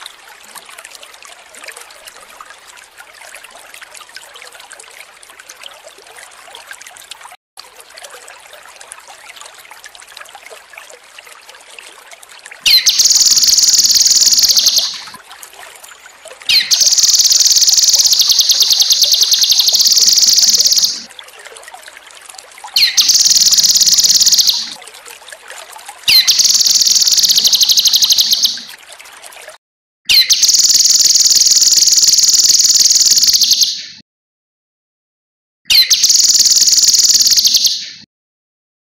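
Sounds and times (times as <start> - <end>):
soft trickling water: 0.0 - 29.6, 30.2 - 33.7, 35.8 - 37.7
bird singing rapid trills: 12.7 - 15.1, 16.5 - 21.1, 22.8 - 24.8, 26.1 - 28.7, 30.1 - 34.0, 35.7 - 38.0.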